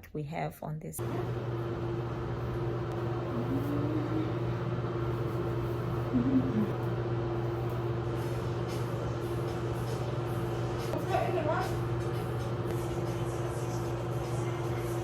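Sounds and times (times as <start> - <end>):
air-conditioning vent hum: 0.0 - 15.0.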